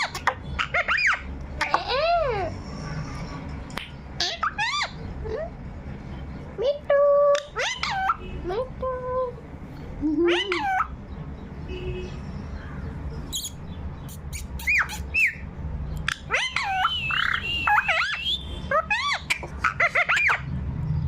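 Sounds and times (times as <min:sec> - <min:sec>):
parrot squawking and whistling: 0:00.0 - 0:02.2, 0:04.2 - 0:05.0, 0:07.3 - 0:08.3, 0:10.3 - 0:10.9, 0:13.3 - 0:15.4, 0:16.0 - 0:20.5.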